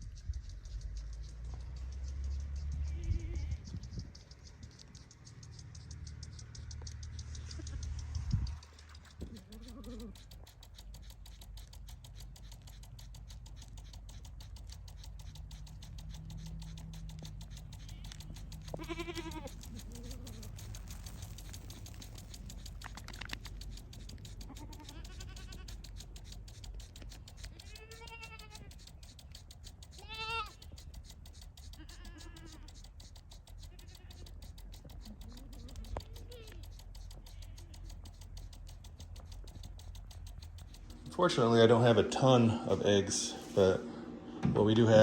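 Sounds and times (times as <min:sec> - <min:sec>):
goats bleating: 0:02.8 - 0:03.6, 0:09.2 - 0:10.3, 0:17.6 - 0:21.0, 0:24.3 - 0:26.2, 0:27.4 - 0:28.8, 0:29.9 - 0:30.8, 0:31.6 - 0:32.8, 0:33.7 - 0:34.4, 0:35.0 - 0:37.9.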